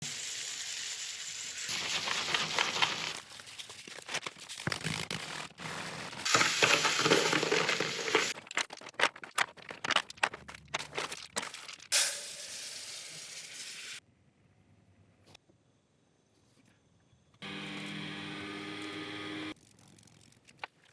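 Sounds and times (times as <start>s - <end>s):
tool hissing and scraping: 12.0s - 14.0s.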